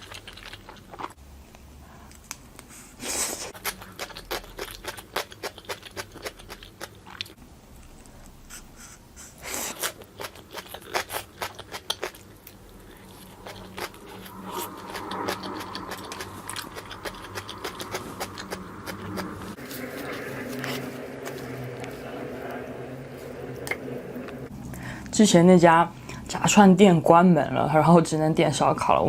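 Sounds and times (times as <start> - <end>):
crisp crunching and chewing: 0.0 - 1.2, 3.5 - 8.3, 9.6 - 22.2.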